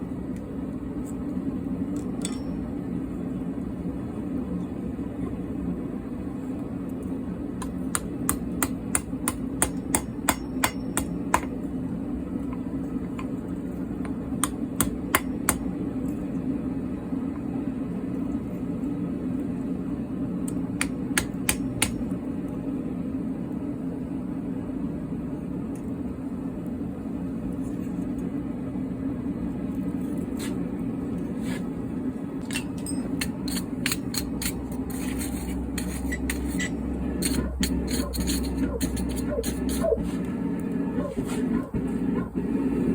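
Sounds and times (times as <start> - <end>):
steady low hum: 0.0 - 42.9
hammer striking metal on anvil: 7.6 - 11.5, 14.4 - 15.7, 32.5 - 34.6.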